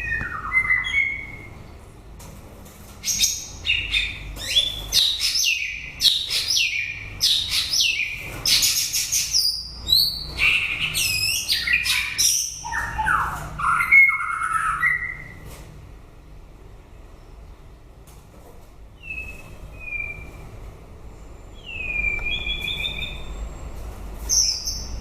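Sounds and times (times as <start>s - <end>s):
songbird whistled song: 0.0s - 1.6s, 3.0s - 15.4s, 19.0s - 20.5s, 21.5s - 23.6s, 24.2s - 25.0s.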